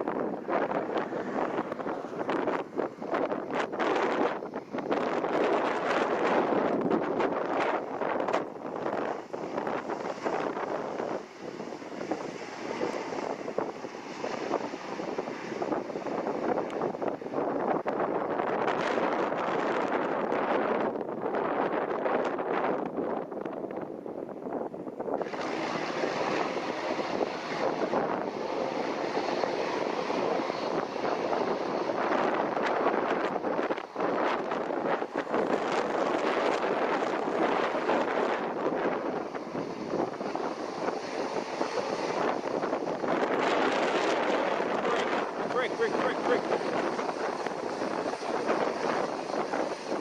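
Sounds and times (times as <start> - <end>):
gusty wind buffeting microphone: 0.0 - 50.0
jet engines roaring: 0.0 - 50.0
faint high whine: 25.1 - 50.0.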